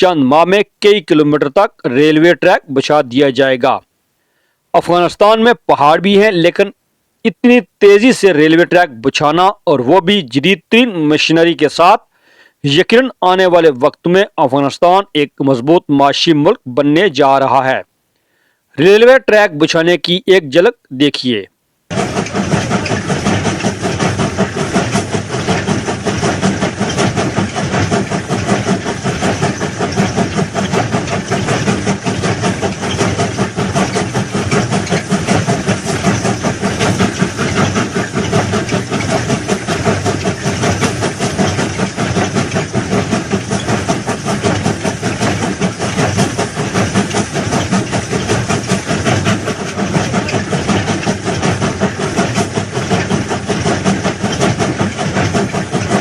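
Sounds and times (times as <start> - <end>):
heavy machinery running: 21.9 - 56.0.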